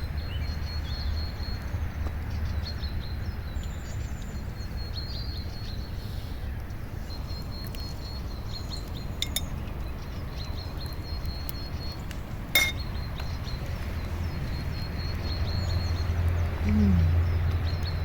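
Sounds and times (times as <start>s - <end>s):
low outdoor rumble: 1.2s - 18.0s
tableware clinking: 9.2s - 9.5s, 12.5s - 12.8s.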